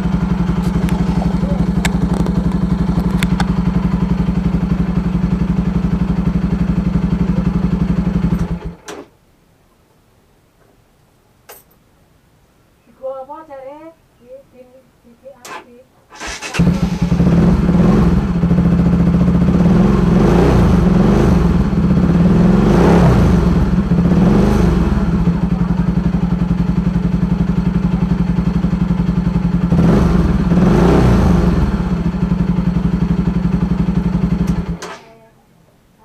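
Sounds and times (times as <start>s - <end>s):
motorcycle engine revving: 0.0s - 8.8s, 16.1s - 35.0s.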